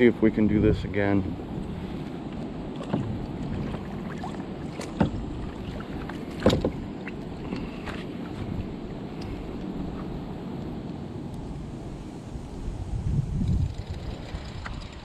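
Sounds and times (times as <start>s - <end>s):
water noise: 0.0s - 15.0s
wind: 0.0s - 15.0s
sharp knocks against hull: 2.7s - 8.5s.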